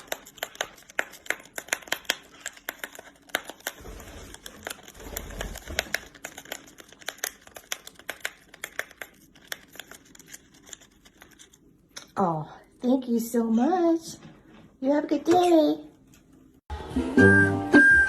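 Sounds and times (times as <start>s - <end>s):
parrot beak tearing packet: 0.0s - 11.7s.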